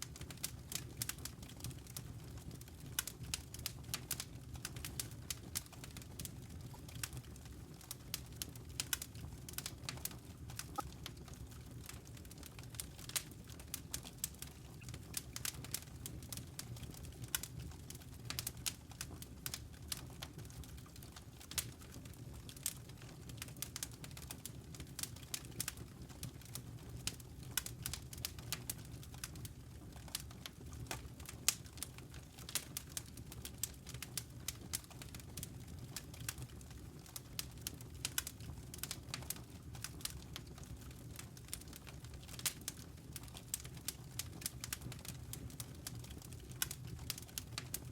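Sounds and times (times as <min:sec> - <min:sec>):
campfire crackling: 0:30.9 - 0:40.7, 0:41.4 - 0:47.9.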